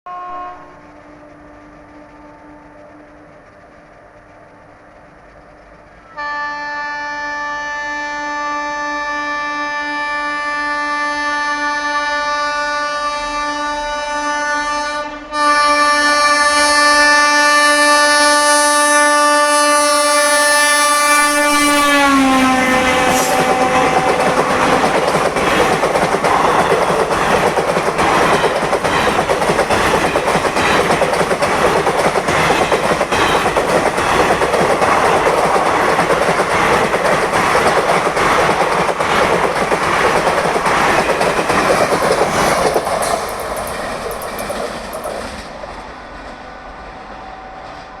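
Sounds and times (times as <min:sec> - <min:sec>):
locomotive horn blaring: 0:00.1 - 0:03.0, 0:06.1 - 0:24.9
train wheels clattering over rail joints: 0:21.4 - 0:45.9.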